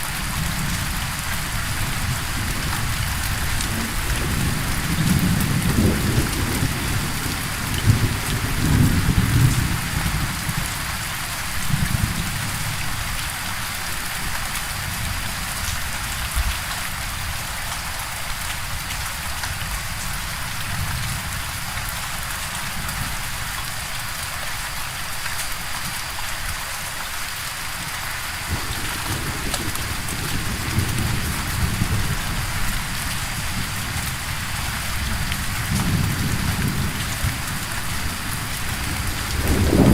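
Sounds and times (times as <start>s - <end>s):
heavy rain: 0.0s - 39.9s
rolling thunder: 0.5s - 10.7s, 28.5s - 39.9s.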